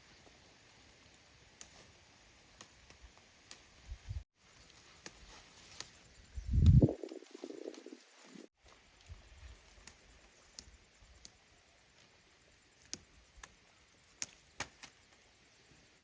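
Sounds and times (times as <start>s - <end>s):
small clicks and snaps: 9.0s - 12.1s, 12.8s - 15.2s.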